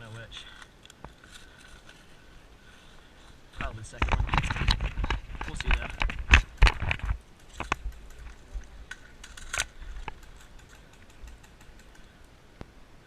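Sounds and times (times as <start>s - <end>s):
light rattles: 3.2s - 12.4s
sharp clicks: 4.0s - 12.7s.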